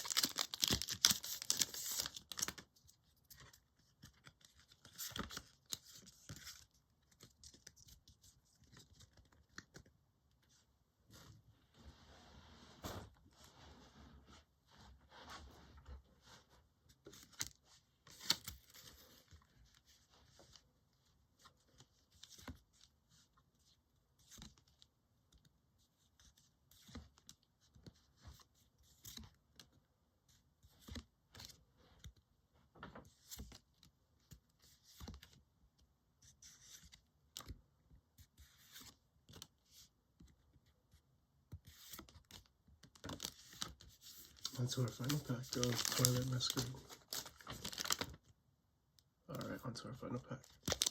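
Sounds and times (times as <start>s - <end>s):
foil wrapper rustling: 0.0s - 2.6s, 44.4s - 48.1s.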